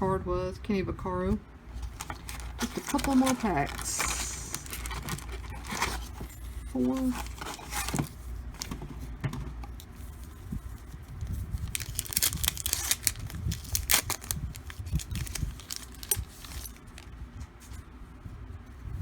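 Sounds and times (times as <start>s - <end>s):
cards rustling: 1.7s - 17.2s
wrapper tearing and crinkling: 1.8s - 8.7s, 11.2s - 17.1s.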